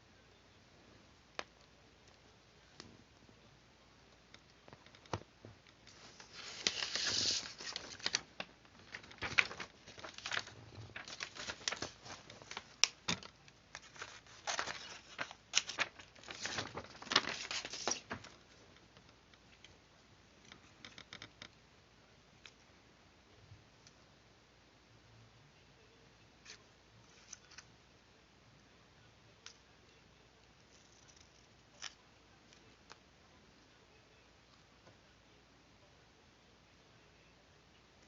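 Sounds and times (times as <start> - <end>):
paper rustling and crinkling: 5.9 - 18.6.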